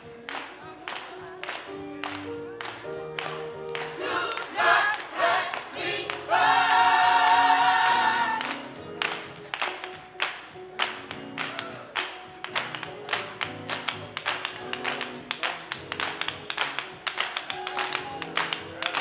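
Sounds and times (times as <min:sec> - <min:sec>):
music with percussive beat: 0:00.0 - 0:19.0
choir singing: 0:03.8 - 0:08.8.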